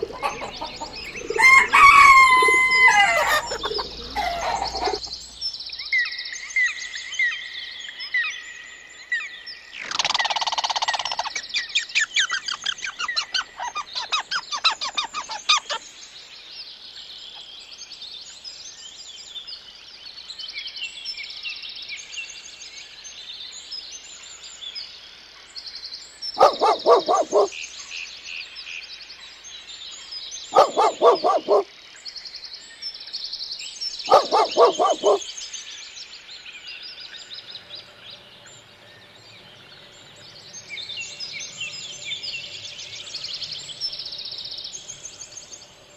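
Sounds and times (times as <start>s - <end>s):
waterfowl honking calls: 0.0s - 5.0s, 26.4s - 27.5s, 30.6s - 31.6s, 34.1s - 35.2s
small birds chirping: 0.0s - 6.4s, 9.3s - 16.3s, 26.3s - 27.7s, 30.3s - 32.3s, 33.1s - 45.9s.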